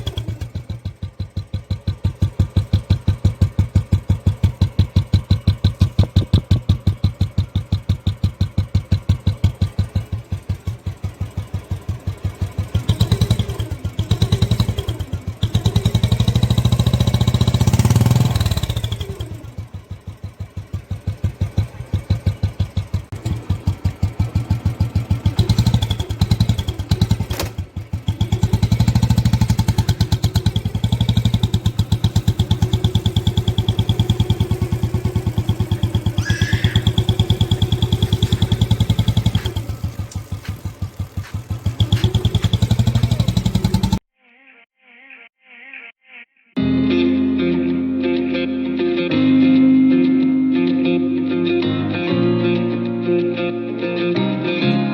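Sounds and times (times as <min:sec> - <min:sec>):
motorcycle engine revving: 0:00.0 - 0:44.1.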